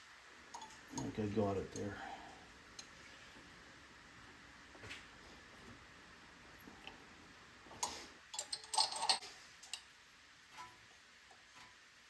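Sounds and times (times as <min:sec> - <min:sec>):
metal engine parts clinking: 0:00.5 - 0:02.0, 0:07.8 - 0:09.8.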